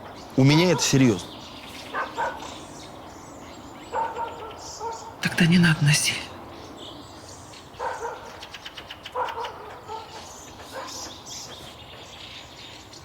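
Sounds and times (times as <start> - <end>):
dog barking: 0.6 - 1.2, 1.9 - 2.6, 3.9 - 5.2, 7.8 - 8.4, 9.1 - 11.2.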